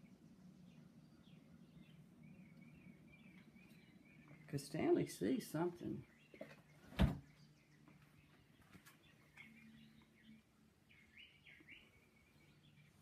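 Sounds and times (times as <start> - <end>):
faint bird chirps: 0.0 - 5.1, 5.8 - 13.0
low steady hum: 0.0 - 13.0.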